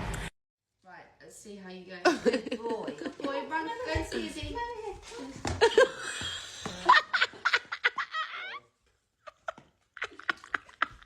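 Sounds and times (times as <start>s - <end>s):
person laughing: 5.6s - 8.6s, 9.2s - 11.0s.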